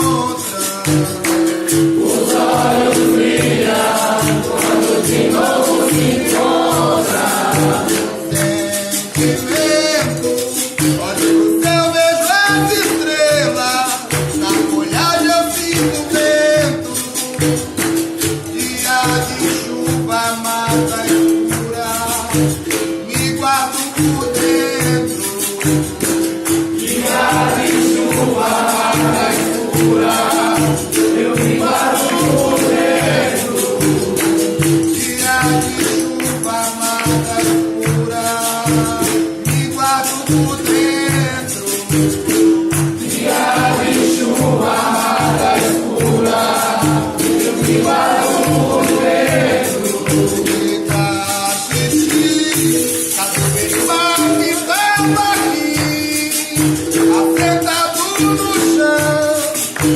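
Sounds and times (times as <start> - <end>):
singing with a chorus: 0.0 - 12.3, 24.4 - 56.5
berimbau: 0.0 - 59.9
pandeiro beat: 0.0 - 59.9.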